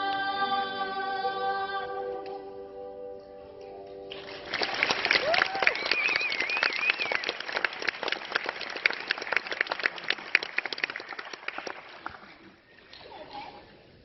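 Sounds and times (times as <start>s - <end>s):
audience applause: 4.1s - 12.3s
high wavering cheer: 5.1s - 7.5s.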